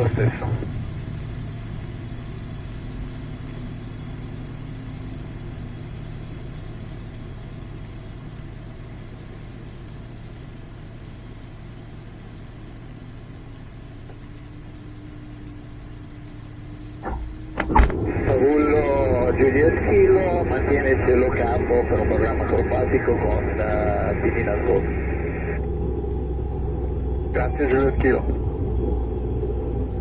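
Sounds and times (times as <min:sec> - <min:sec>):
low drone: 0:00.0 - 0:30.0
rushing airflow in cockpit: 0:10.6 - 0:30.0.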